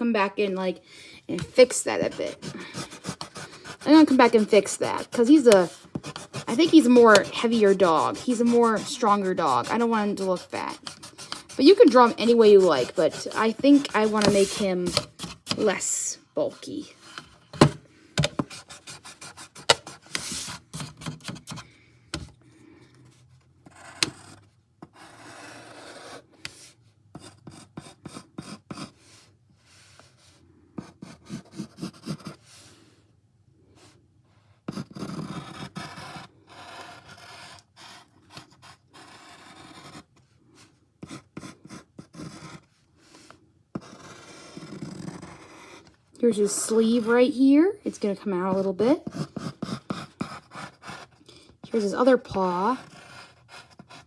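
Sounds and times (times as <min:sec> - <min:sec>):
pencil scratching on paper: 0:01.3 - 0:21.6, 0:23.7 - 0:29.2, 0:30.8 - 0:32.7, 0:34.7 - 0:47.4, 0:48.0 - 0:54.0
rubbing on paper: 0:01.4 - 0:17.2, 0:18.4 - 0:20.9.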